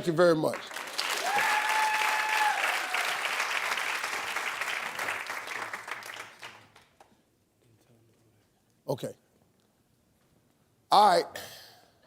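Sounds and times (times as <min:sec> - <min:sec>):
audience applauding: 0:00.4 - 0:07.0.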